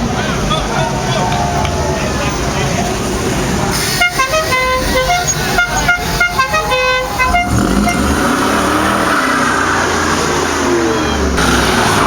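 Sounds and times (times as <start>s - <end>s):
car engine revving: 0.0s - 12.0s
musical car horn tune: 3.8s - 8.2s.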